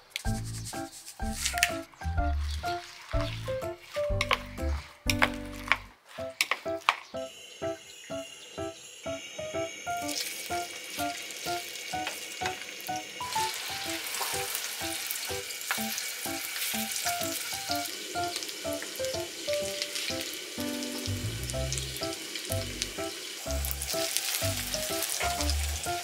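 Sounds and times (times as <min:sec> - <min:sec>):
light plucked background tune: 0:00.3 - 0:14.5, 0:15.8 - 0:26.0
pancakes sizzling in oil: 0:06.3 - 0:26.0.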